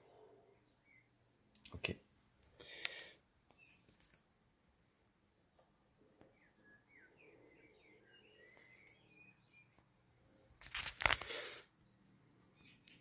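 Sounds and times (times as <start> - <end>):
faint bird chirps: 0.0 - 1.3, 3.2 - 4.3, 5.5 - 10.5, 11.7 - 13.0.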